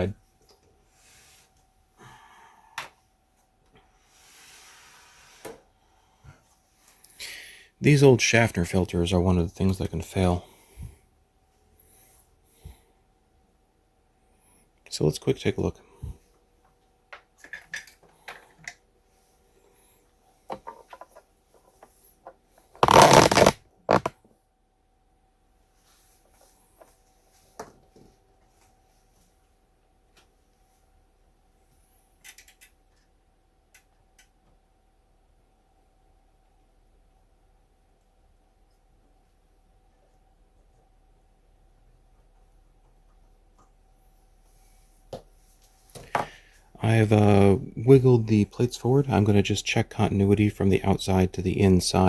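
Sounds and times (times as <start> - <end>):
soft rustling and scraping: 25.7 - 29.6, 44.0 - 46.7.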